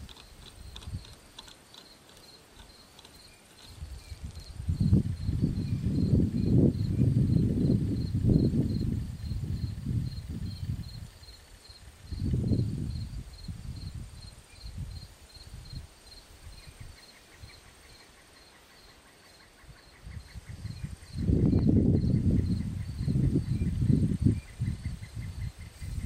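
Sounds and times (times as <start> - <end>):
wind rumbling on microphone: 0.0 - 18.0, 19.5 - 26.0
insect chirping: 0.0 - 26.0.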